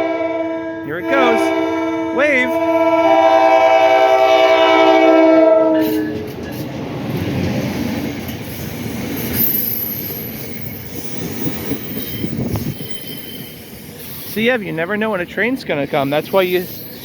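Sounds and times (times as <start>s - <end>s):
train air horn chord: 0.0s - 6.2s
train wheels rumbling on rail: 0.0s - 17.0s
high wheel squeal: 8.4s - 14.7s, 15.9s - 17.0s.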